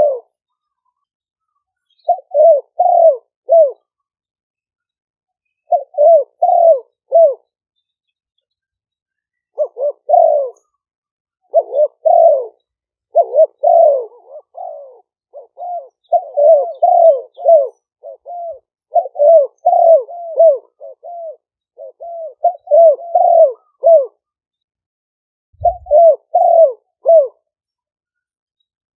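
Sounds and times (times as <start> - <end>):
doves cooing: 0.0 - 0.3, 2.0 - 3.9, 5.7 - 7.4, 9.6 - 10.7, 11.5 - 24.2, 25.6 - 27.4.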